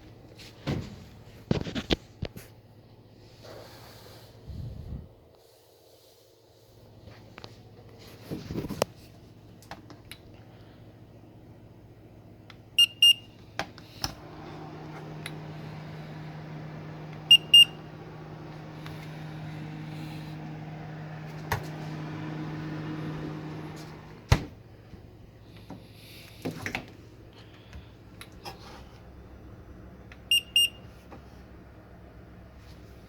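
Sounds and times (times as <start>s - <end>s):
steady low hum: 10.3s - 30.8s
refrigerator control panel beeping: 12.8s - 13.3s, 17.0s - 18.2s, 30.3s - 30.9s.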